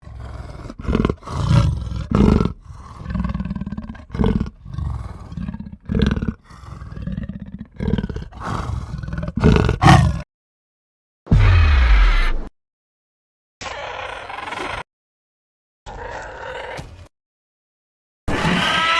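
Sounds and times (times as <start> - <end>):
large animal roaring and growling: 0.0 - 10.2.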